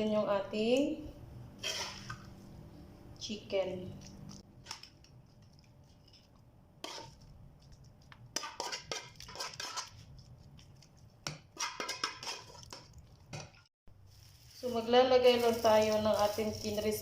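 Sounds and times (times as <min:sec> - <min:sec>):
spoon scraping a cooking pot: 0:01.5 - 0:02.4, 0:06.0 - 0:07.2, 0:08.3 - 0:10.2, 0:10.8 - 0:13.7.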